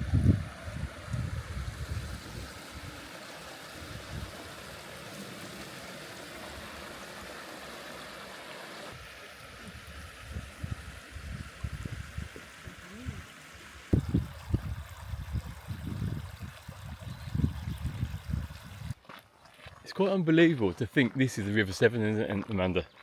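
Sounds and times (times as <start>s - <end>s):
wind on microphone: 0.0s - 3.1s, 3.8s - 4.6s, 9.6s - 13.3s, 13.9s - 19.0s
stream rushing over rocks: 0.0s - 19.0s.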